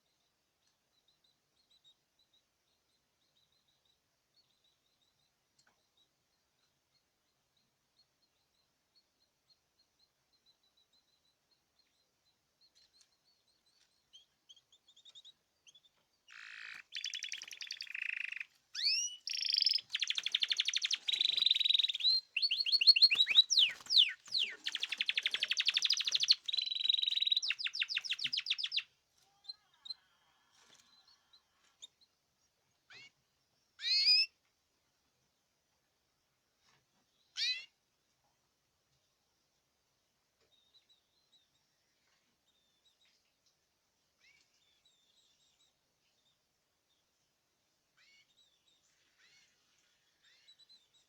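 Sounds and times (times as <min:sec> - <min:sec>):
songbird singing trills: 0:00.9 - 0:30.1, 0:30.7 - 0:34.4
short bird chirps: 0:14.1 - 0:30.0.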